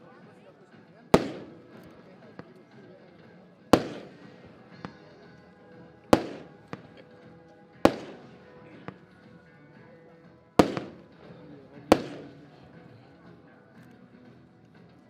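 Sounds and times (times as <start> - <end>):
firework bangs with echo: 1.2 - 2.1, 3.8 - 5.0, 6.1 - 7.0, 7.9 - 9.0, 10.6 - 12.6
faint firework cracks: 1.2 - 2.6, 3.8 - 5.2, 6.1 - 7.1, 7.9 - 9.1, 10.6 - 12.7.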